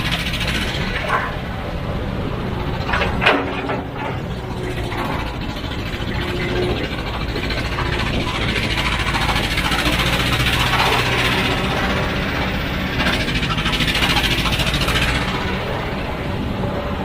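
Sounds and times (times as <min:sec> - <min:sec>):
diesel engine running: 0:00.0 - 0:17.0
short metallic knocks: 0:02.8 - 0:07.1.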